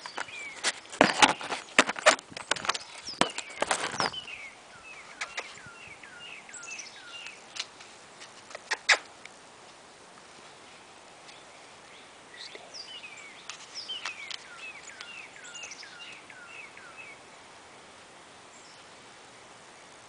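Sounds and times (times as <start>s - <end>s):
faint outdoor background hiss: 0.0s - 20.0s
songbird whistling: 3.1s - 7.4s, 12.4s - 17.2s.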